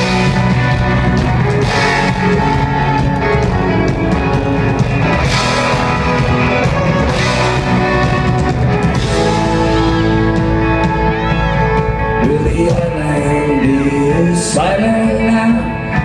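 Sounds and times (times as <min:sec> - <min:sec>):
live band playing guitars: 0:00.0 - 0:16.0
person singing: 0:11.0 - 0:16.0.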